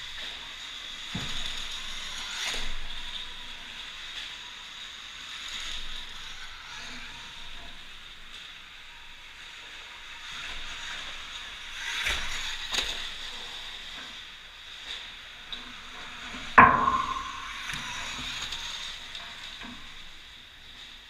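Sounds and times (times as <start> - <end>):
tyres on dirt track: 8.4 - 20.3
knocks: 16.6 - 17.9.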